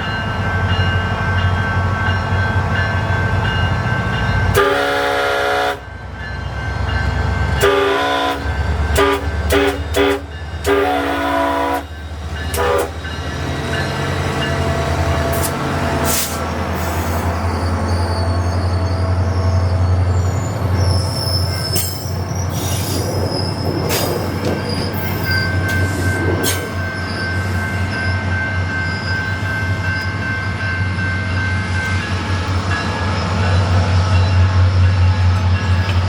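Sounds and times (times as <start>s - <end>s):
train rumble: 0.0s - 36.0s
wheel squeal: 16.2s - 28.2s.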